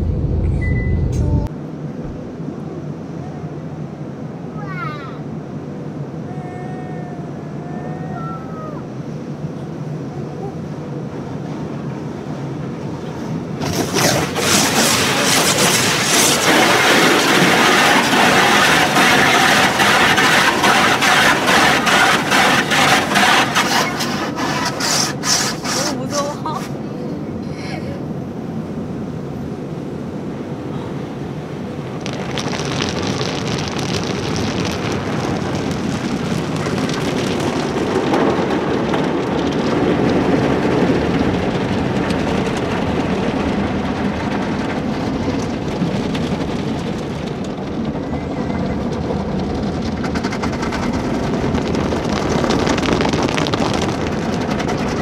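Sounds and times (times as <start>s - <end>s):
car wash water spray: 13.2s - 26.6s
car wash brushes on car body: 13.2s - 26.8s.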